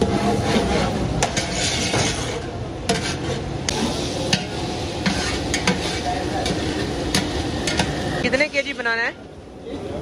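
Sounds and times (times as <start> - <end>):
metal ladle scraping a pot: 0.0 - 8.8
onions sizzling in oil: 3.7 - 9.1.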